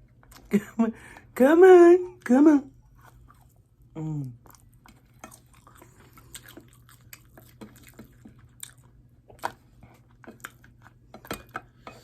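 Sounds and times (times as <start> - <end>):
chewing and lip-smacking: 2.8 - 11.6.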